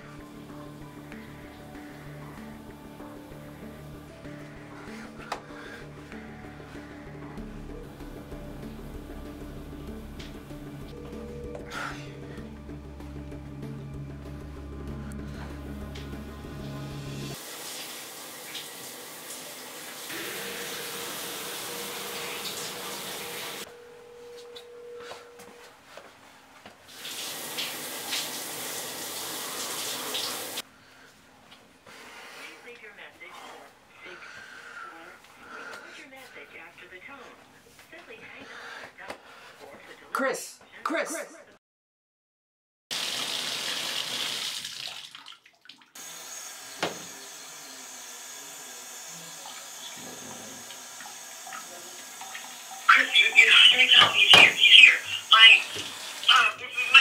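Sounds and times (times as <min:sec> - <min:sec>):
shower water spraying: 0:16.6 - 0:23.7, 0:26.9 - 0:30.6, 0:42.9 - 0:45.3, 0:46.0 - 0:57.0.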